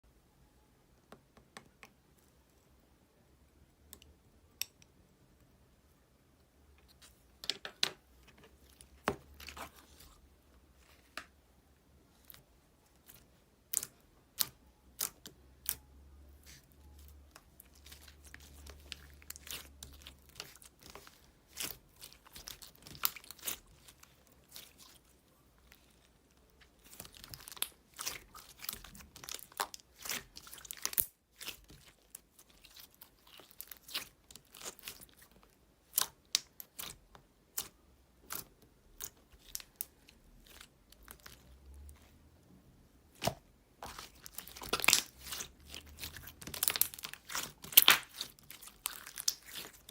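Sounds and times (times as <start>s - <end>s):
slime squeezed and stretched: 16.4s - 26.1s, 26.7s - 41.6s, 43.2s - 49.9s.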